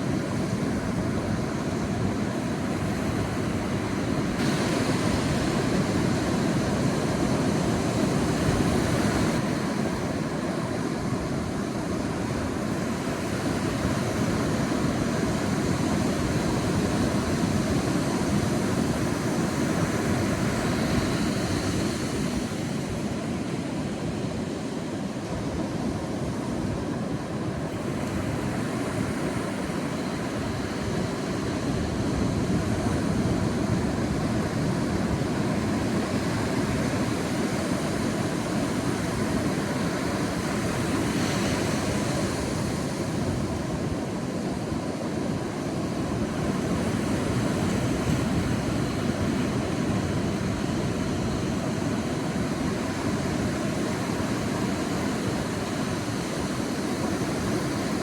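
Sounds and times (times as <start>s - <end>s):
sea waves washing on beach: 0.0s - 58.0s
hiss of breaking water: 4.3s - 7.2s.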